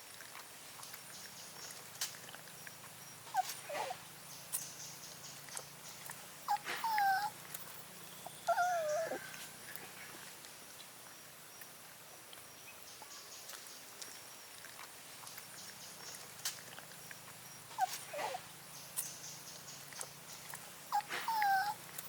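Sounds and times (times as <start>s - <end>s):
puppy whining: 3.3s - 4.0s, 6.5s - 9.6s, 17.8s - 18.4s, 20.9s - 22.0s.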